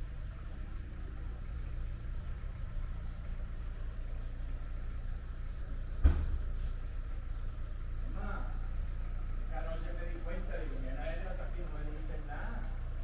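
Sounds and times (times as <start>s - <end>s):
vehicle engine idling: 0.0s - 13.0s
sharp knock: 6.0s - 6.5s.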